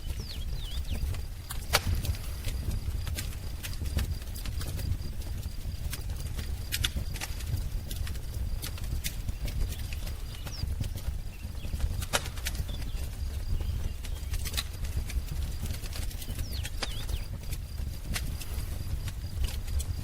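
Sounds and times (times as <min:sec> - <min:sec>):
bird chirps: 0:00.0 - 0:01.1, 0:16.2 - 0:17.3
wood fire crackling: 0:00.0 - 0:20.0.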